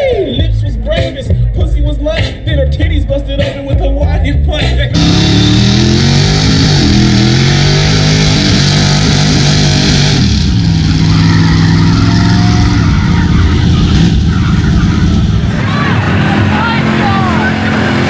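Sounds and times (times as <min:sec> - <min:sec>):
truck engine at high revs: 0:04.5 - 0:18.0.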